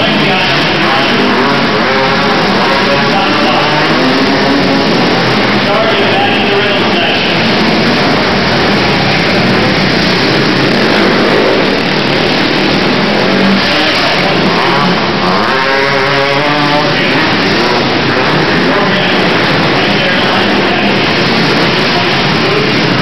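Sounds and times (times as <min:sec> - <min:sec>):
quad engines revving: 0:00.0 - 0:23.0.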